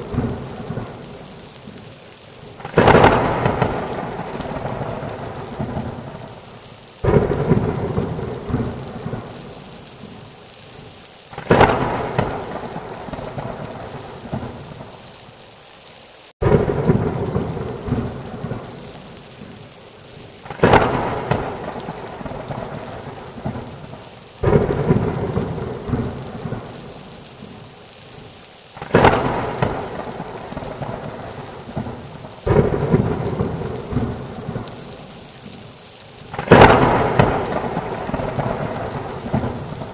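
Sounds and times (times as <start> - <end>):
thunder cracks and rumble: 0.0 - 1.2, 2.6 - 6.4, 7.0 - 9.6, 11.4 - 14.6, 16.4 - 19.0, 20.5 - 27.0, 28.8 - 34.8, 36.3 - 39.9
steady rain: 0.0 - 39.9.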